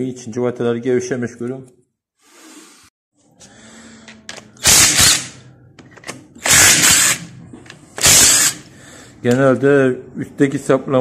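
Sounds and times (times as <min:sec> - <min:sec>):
power driver bursts: 0:04.6 - 0:05.4, 0:06.4 - 0:07.3, 0:08.0 - 0:08.7.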